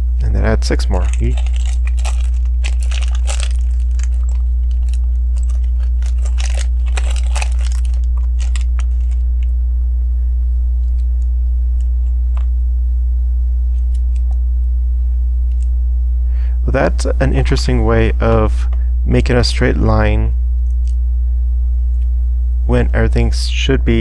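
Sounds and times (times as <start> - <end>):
low electrical hum: 0.0 - 24.0
plastic bricks rattling: 0.9 - 9.2.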